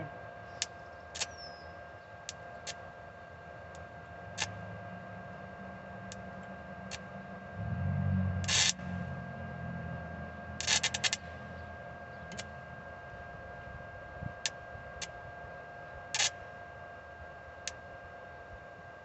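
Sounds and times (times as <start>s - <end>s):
steady high whine: 0.0s - 19.0s
welding arc crackles: 8.5s - 8.9s, 10.6s - 11.3s.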